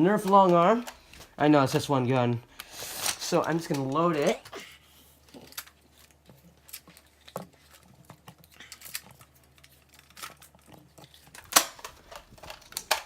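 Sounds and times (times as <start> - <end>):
sharp plastic clacks: 5.3 - 13.0.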